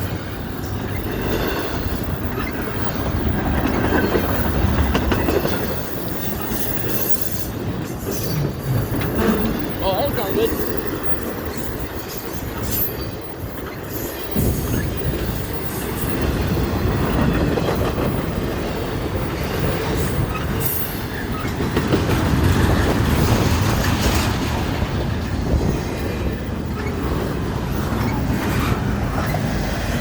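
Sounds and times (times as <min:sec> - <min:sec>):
train wheels rumbling on rails: 0:00.0 - 0:30.0
wheels clacking over rail joints: 0:00.0 - 0:30.0.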